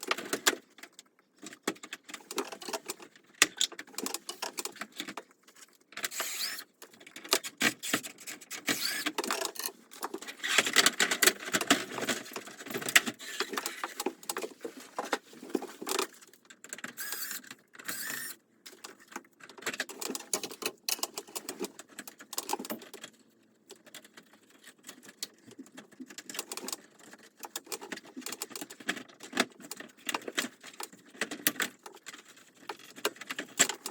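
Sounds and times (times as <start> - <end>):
rustling of parts: 0.0 - 33.9
clicking and tapping of parts: 24.9 - 33.9.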